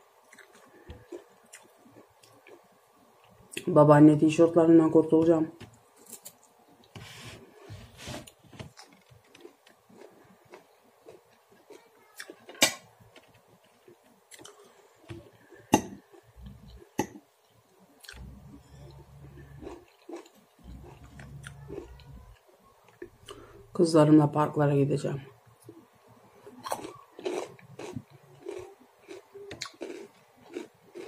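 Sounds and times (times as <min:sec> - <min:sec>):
chewing parsley: 0:00.2 - 0:03.6, 0:18.0 - 0:23.6, 0:26.6 - 0:31.0
low rumble: 0:18.1 - 0:19.8, 0:20.6 - 0:22.4, 0:23.0 - 0:23.9.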